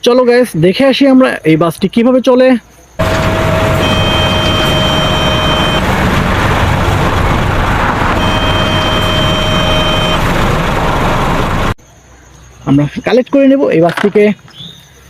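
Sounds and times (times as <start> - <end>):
bus engine running: 3.0 - 11.8
steady whining tone: 3.0 - 11.8.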